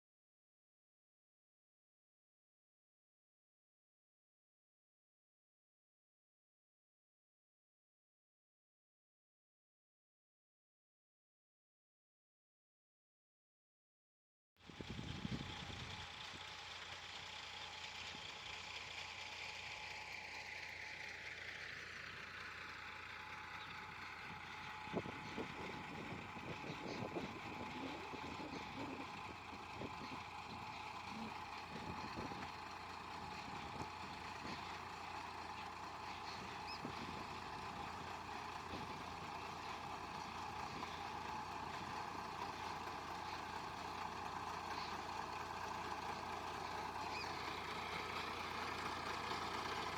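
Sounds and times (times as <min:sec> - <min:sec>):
tractor engine running under load: 0:14.6 - 0:49.9.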